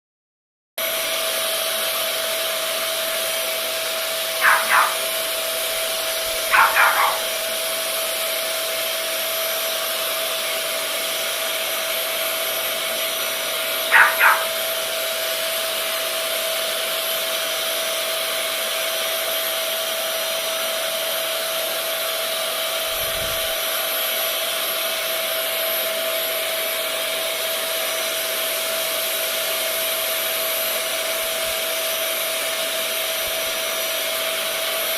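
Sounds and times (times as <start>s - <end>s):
vacuum cleaner running: 0.8s - 34.9s
dog barking: 4.4s - 5.3s, 6.3s - 7.5s, 13.8s - 14.8s.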